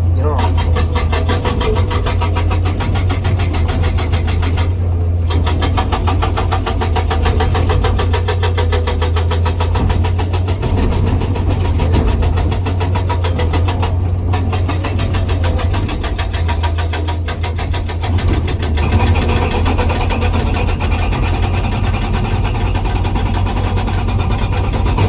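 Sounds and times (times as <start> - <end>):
diesel engine running: 0.0 - 25.0
hydraulic breaker hammering rock: 0.0 - 25.0.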